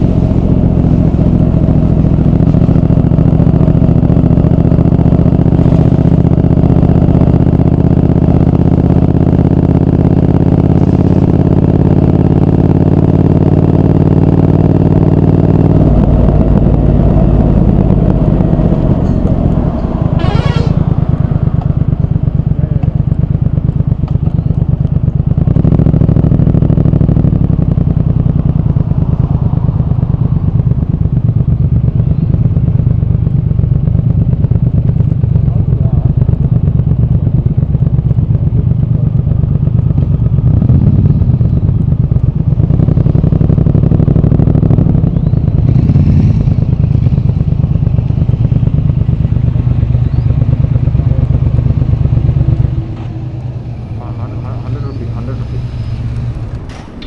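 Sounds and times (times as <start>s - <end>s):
motorcycle engine running: 0.0s - 57.0s
brief high rising sound: 15.7s - 22.2s.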